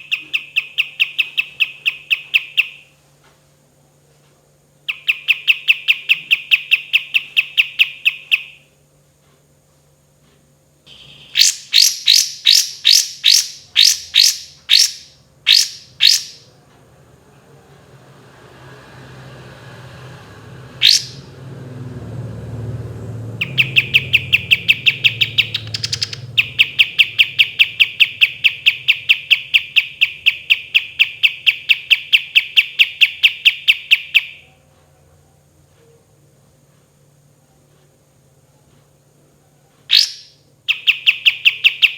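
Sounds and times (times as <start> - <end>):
songbird fast repeated notes: 0.0 - 2.9, 10.9 - 16.5, 20.8 - 21.3, 23.4 - 34.5, 39.9 - 41.9
songbird sharp sweeping notes: 10.9 - 16.5, 20.7 - 21.4, 22.6 - 34.4.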